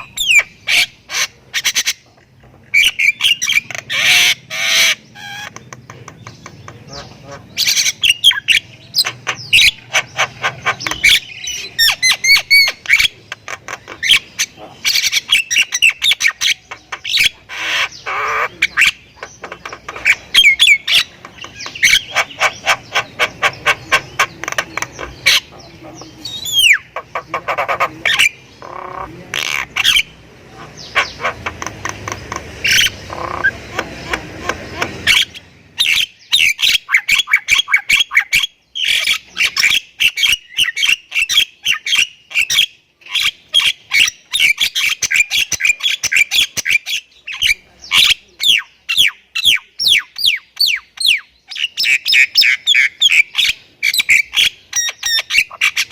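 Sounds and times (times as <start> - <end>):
myna chattering and clicking: 0.0 - 35.9.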